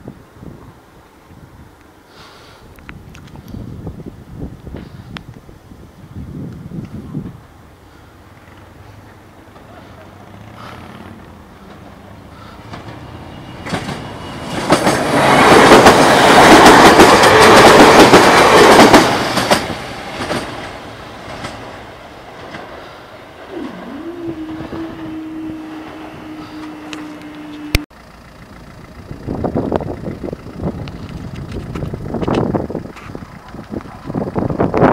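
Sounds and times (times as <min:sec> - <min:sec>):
train passing close by: 0:06.9 - 0:27.8
wheels clacking over rail joints: 0:08.2 - 0:34.9.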